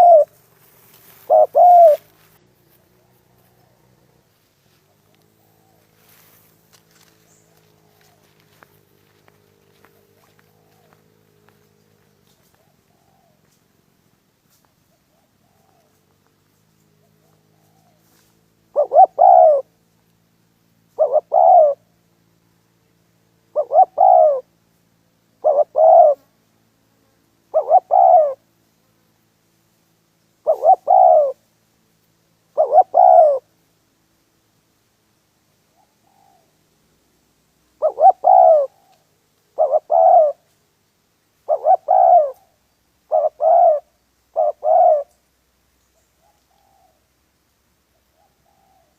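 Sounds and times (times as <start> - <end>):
dove cooing: 0.0 - 0.4, 1.0 - 13.6, 14.9 - 16.2, 17.0 - 19.8, 20.9 - 21.9, 23.5 - 24.5, 25.4 - 26.3, 27.5 - 28.5, 30.4 - 31.4, 32.5 - 33.5, 35.7 - 36.6, 37.8 - 40.5, 41.4 - 45.2, 47.9 - 48.9.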